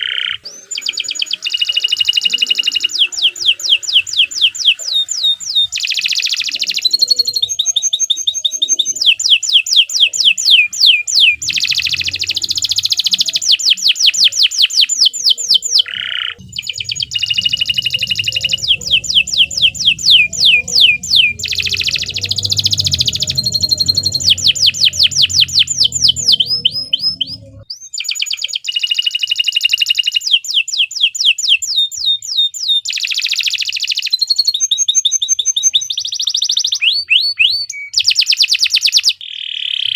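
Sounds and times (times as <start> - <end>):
canary singing fast trills: 0.0 - 39.9
low rumble: 16.4 - 27.7.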